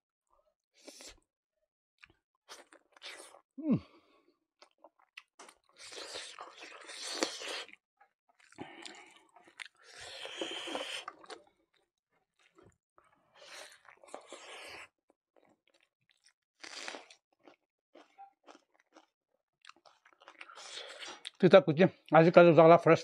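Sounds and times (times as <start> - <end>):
person chewing food: 2.0 - 3.5, 4.6 - 21.4.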